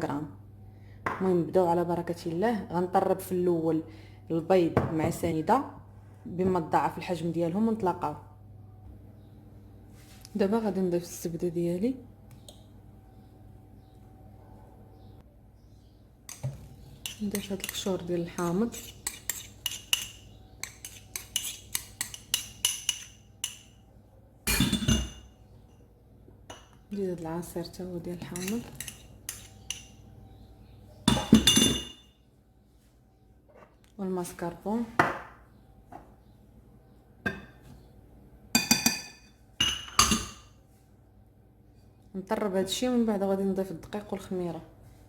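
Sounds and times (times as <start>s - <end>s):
metal spoon clinking in bowl: 16.3s - 23.8s.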